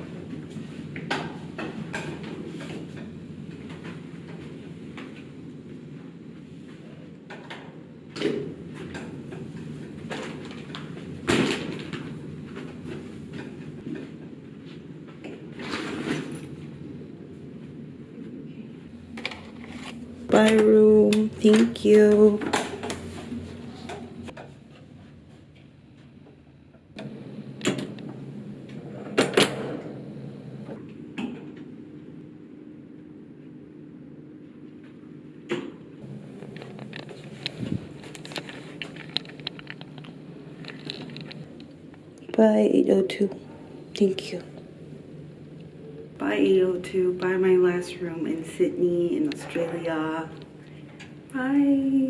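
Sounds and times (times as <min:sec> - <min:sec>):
low steady hum: 0:00.0 - 0:52.0
low hum: 0:26.2 - 0:30.9, 0:36.0 - 0:52.0
knocks of objects handled: 0:36.2 - 0:41.7.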